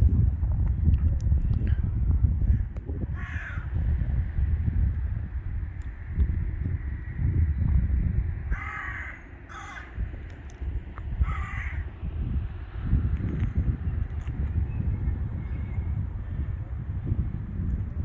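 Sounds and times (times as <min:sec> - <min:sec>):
wind rumble on microphone: 0:00.0 - 0:18.0
crow cawing: 0:03.2 - 0:03.7, 0:08.5 - 0:10.0, 0:11.2 - 0:11.9.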